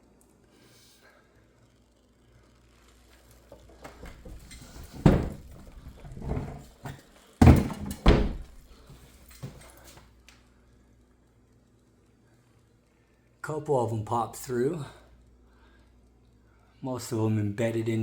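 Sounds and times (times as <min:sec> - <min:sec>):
refrigerator thuds and scraping: 0:03.9 - 0:08.7
loud knocks: 0:07.4 - 0:08.6.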